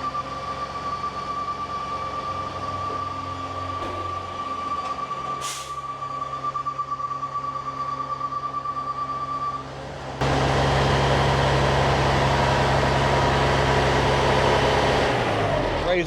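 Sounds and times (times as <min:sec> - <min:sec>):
diesel truck engine running: 0:00.0 - 0:16.0
air brakes hissing: 0:05.2 - 0:06.0.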